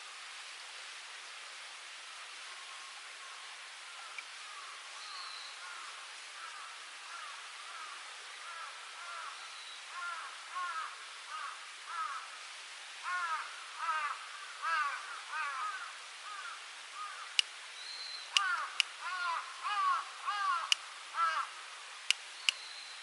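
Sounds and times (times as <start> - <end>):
background hiss: 0.0 - 23.0
crow cawing: 6.4 - 12.3, 13.0 - 17.4, 18.3 - 21.5.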